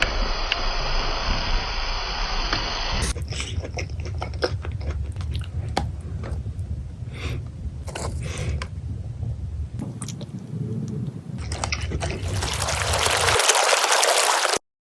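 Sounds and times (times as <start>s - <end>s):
low hum: 0.0s - 13.4s
biting and chewing pizza: 3.1s - 6.8s, 9.8s - 13.5s
wet mouth clicks: 9.8s - 12.4s.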